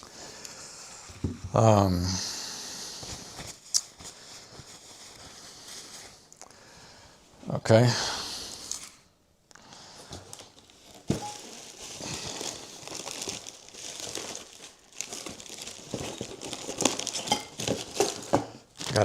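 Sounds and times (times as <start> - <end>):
packaging crinkling: 10.2 - 19.0.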